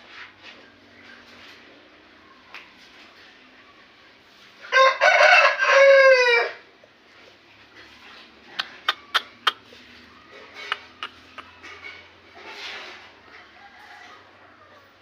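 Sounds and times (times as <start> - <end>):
rooster crowing: 4.6 - 6.6, 13.3 - 15.0.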